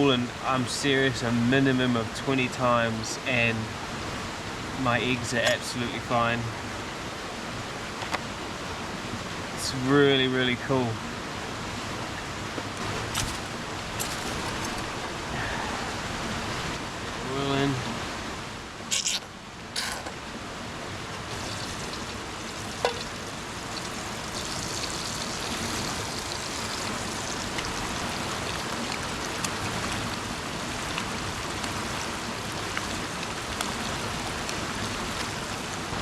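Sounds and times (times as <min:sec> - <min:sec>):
oil sizzling in a frying pan: 0:21.3 - 0:29.2.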